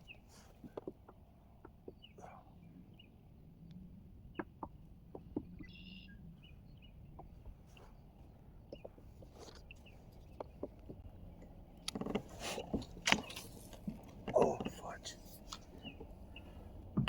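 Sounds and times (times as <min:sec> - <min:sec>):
low background hum: 0:00.0 - 0:17.0
faint bird chirps: 0:05.5 - 0:08.1.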